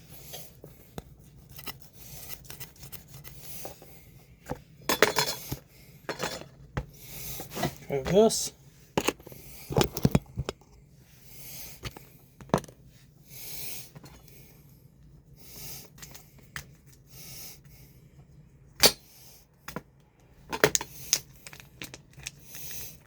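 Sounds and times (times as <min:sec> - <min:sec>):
person breathing: 0:11.0 - 0:12.3, 0:13.2 - 0:14.8.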